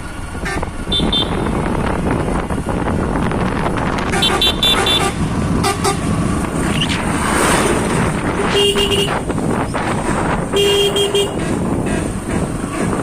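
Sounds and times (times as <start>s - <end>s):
wind and road noise: 0.0s - 13.0s
vehicle horn beeping: 0.4s - 1.7s, 4.1s - 6.1s, 8.4s - 9.3s, 10.5s - 11.5s.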